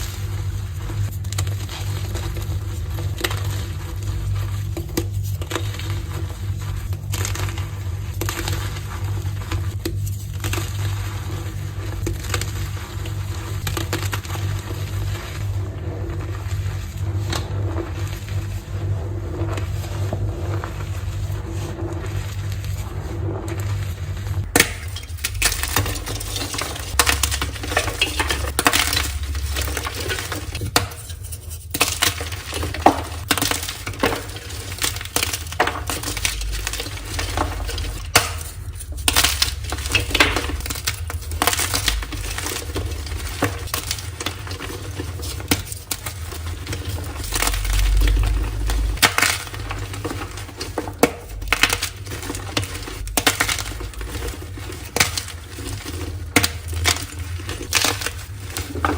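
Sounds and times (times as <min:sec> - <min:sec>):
chalk being crushed by hand: 0:00.0 - 0:58.9.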